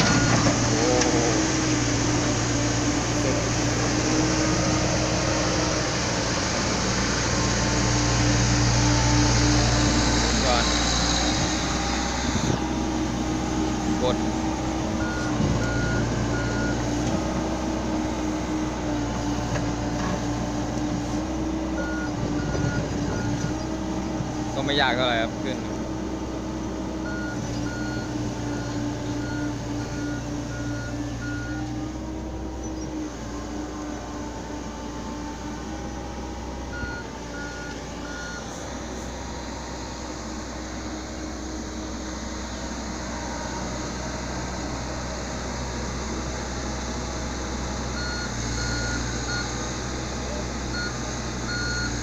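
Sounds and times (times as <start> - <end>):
excavator diesel engine running: 0.0 - 52.0
reversing alarm beeps: 15.0 - 16.8, 27.0 - 31.6, 36.7 - 38.5, 48.0 - 49.6, 50.7 - 52.0.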